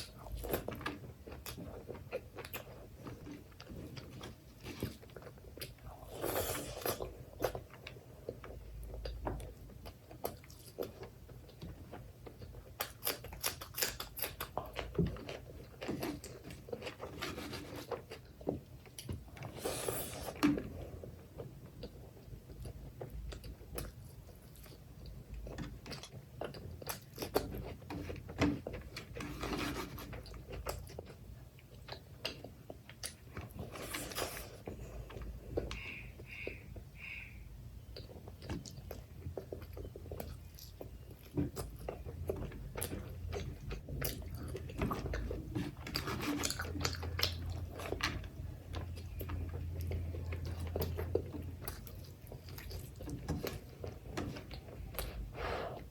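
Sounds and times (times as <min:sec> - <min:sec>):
wet chewing and lip smacking: 0:30.0 - 0:55.9.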